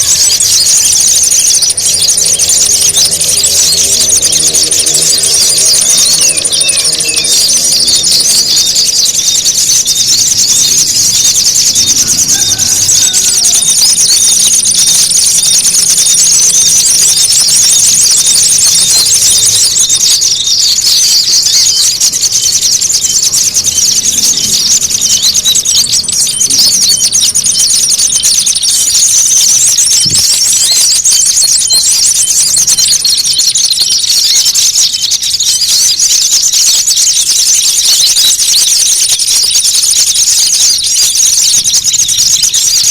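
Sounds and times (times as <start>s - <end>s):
high-pitched whine: 0.0s - 20.0s
songbirds chirping: 0.0s - 42.9s.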